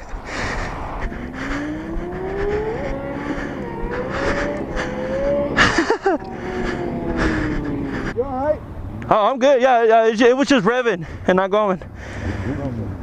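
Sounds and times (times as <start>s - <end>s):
road and wind noise: 0.0s - 13.0s
motorcycle engine revving: 0.4s - 9.2s.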